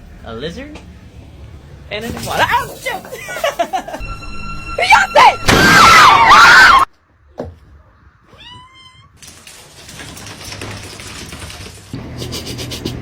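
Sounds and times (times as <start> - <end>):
cat meow: 8.2 - 9.2.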